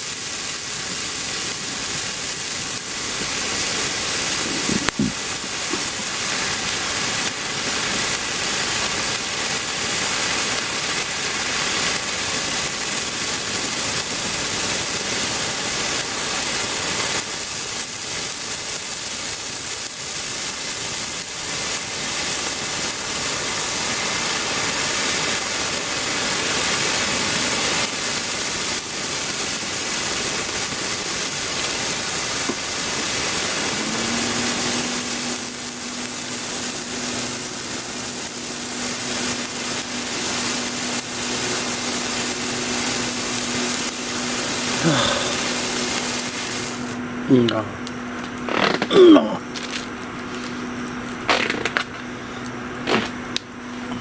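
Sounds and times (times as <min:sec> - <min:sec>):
firework fountain hissing: 0:00.0 - 0:54.0
steady low hum: 0:01.4 - 0:09.6, 0:30.7 - 0:54.0.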